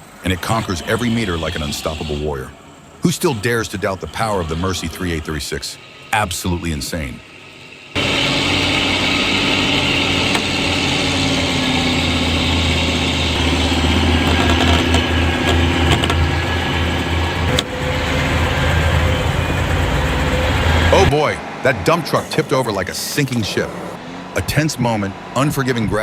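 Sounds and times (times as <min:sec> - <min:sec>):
truck diesel engine droning: 0:00.0 - 0:26.0.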